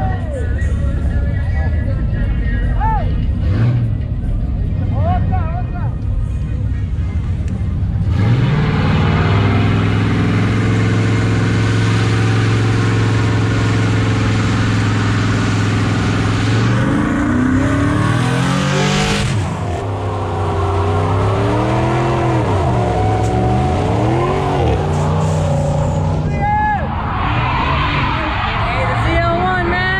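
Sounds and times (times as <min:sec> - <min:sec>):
vehicle engine revving: 0:03.1 - 0:05.4, 0:06.8 - 0:26.3.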